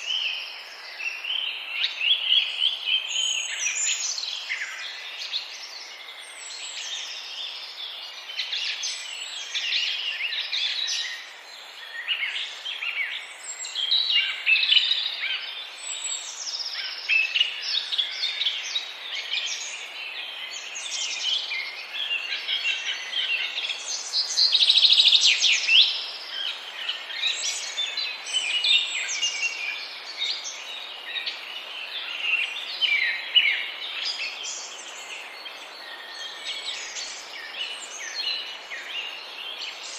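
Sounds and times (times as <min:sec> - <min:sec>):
flock of birds chirping: 0:00.0 - 0:39.9.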